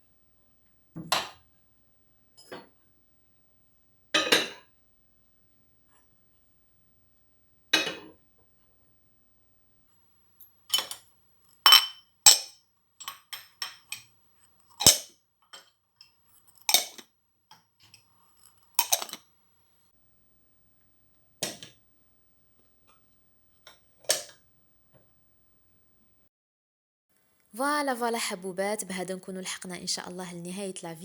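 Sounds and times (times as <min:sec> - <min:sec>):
dishes and glasses clinking: 0:04.2 - 0:04.7, 0:07.8 - 0:08.1, 0:10.7 - 0:14.2, 0:16.7 - 0:17.0, 0:18.6 - 0:19.3.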